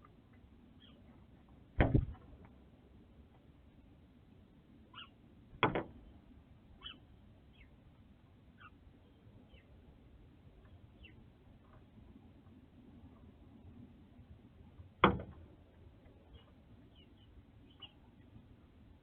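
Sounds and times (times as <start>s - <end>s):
bird knocking on window glass: 5.6s - 5.9s.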